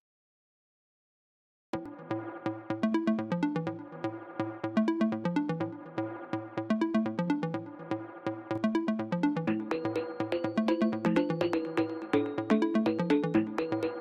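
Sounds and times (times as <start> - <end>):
synth bass line: 1.9 - 14.0
drum machine beat: 9.5 - 14.0.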